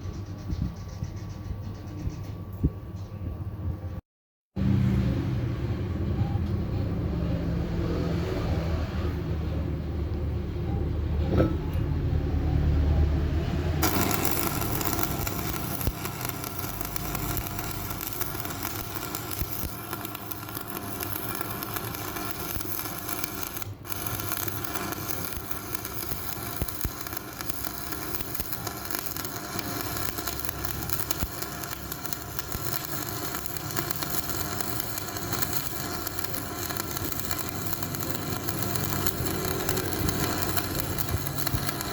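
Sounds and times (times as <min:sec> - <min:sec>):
arc welding hissing crackle: 0:13.8 - 0:41.9.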